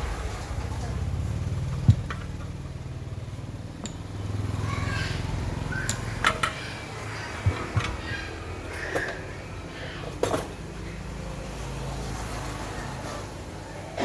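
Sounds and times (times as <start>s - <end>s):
sharp clicks and knocks: 3.8s - 4.1s.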